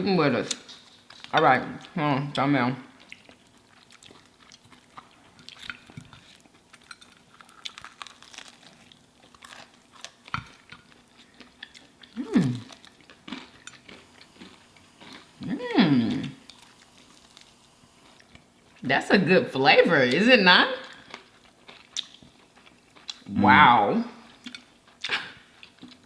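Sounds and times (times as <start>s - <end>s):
chewing crispy fried food: 0.5s - 15.5s, 16.2s - 18.9s, 20.8s - 23.4s, 24.3s - 26.0s
person humming: 12.2s - 12.7s, 15.4s - 16.4s, 23.3s - 24.0s.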